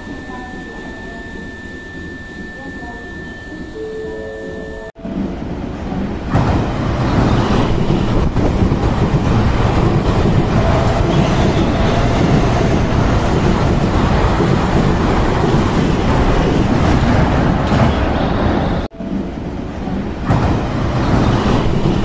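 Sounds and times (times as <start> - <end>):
train wheels rumbling on rail: 5.1 - 22.0.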